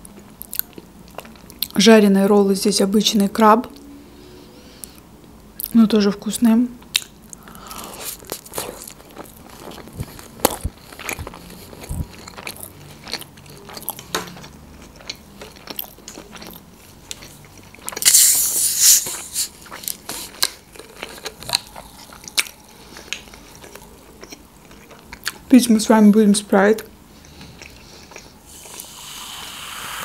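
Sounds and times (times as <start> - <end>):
crunchy wet chewing: 6.8 - 25.5, 27.2 - 29.3
loud high hiss: 28.5 - 30.0.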